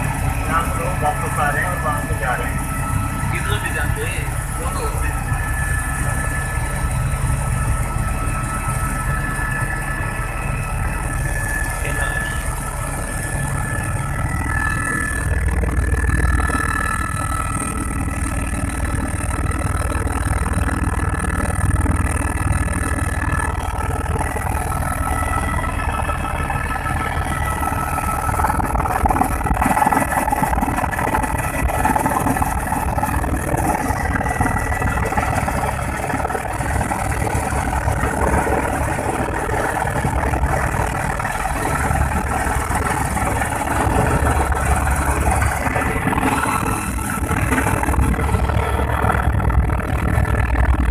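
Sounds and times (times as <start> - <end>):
helicopter running: 0.0 - 50.9.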